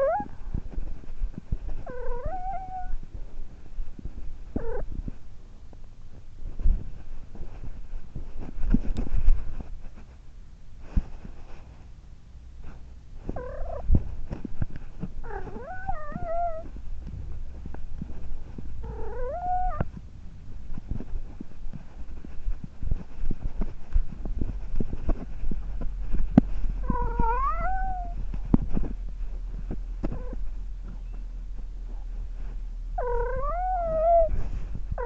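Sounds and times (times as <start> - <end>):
cat meowing: 1.9 - 3.0, 15.3 - 16.7, 18.9 - 19.9, 26.8 - 28.2, 33.0 - 34.4.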